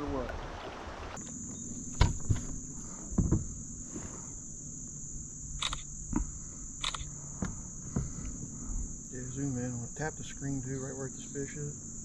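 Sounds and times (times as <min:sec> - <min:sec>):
light knocks and clicks: 0:01.2 - 0:03.5.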